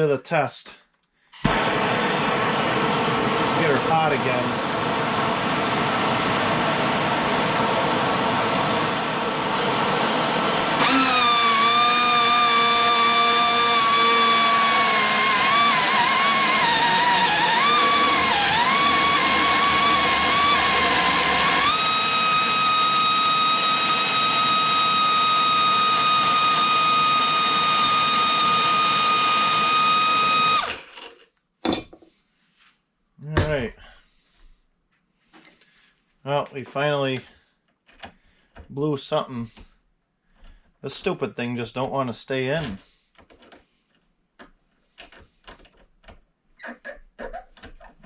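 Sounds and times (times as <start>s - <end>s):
angle grinder whining: 1.4s - 31.2s.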